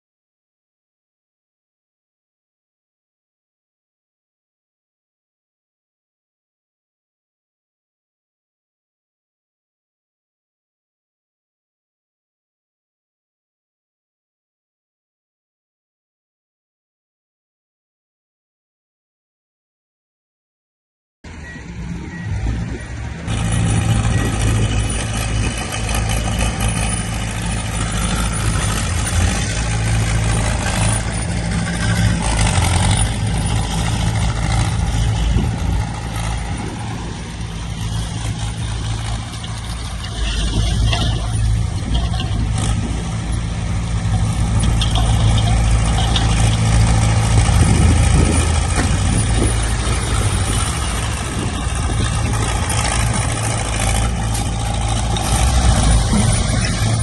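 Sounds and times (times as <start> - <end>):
diesel engine droning: 21.3 - 57.0.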